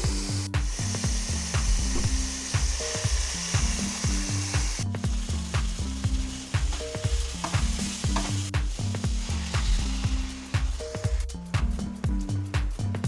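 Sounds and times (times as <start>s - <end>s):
high hiss: 0.0s - 11.2s
food sizzling in oil: 0.1s - 11.3s
low bass line: 1.1s - 13.0s.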